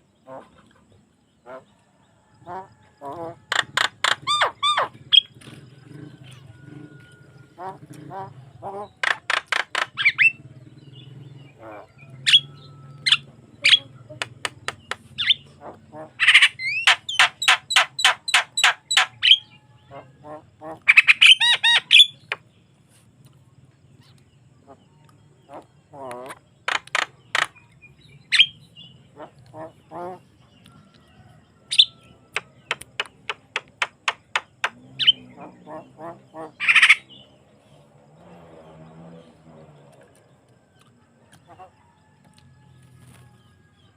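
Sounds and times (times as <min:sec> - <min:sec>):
bird singing and screeching: 0:02.5 - 0:22.5, 0:25.5 - 0:30.4, 0:31.6 - 0:37.6
bird harsh screech: 0:03.5 - 0:05.3, 0:36.5 - 0:37.1
bird whistling calls: 0:03.5 - 0:05.4, 0:09.0 - 0:10.4, 0:12.2 - 0:13.9, 0:15.1 - 0:15.5, 0:16.2 - 0:19.7, 0:20.9 - 0:22.4, 0:28.2 - 0:28.7, 0:36.6 - 0:37.2
bird clicks: 0:32.3 - 0:34.8.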